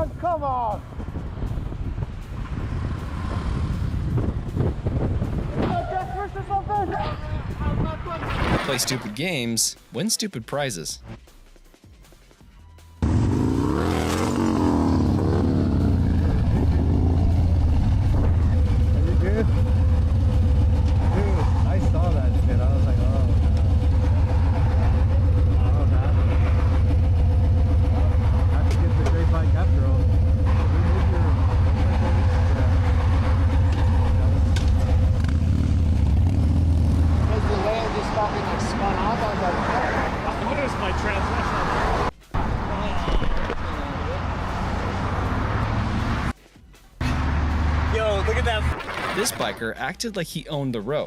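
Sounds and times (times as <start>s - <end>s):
wind and road noise: 0.0s - 9.5s, 13.0s - 49.6s
vehicle engine revving: 2.1s - 5.5s, 13.0s - 42.7s, 43.7s - 46.4s, 47.0s - 49.4s.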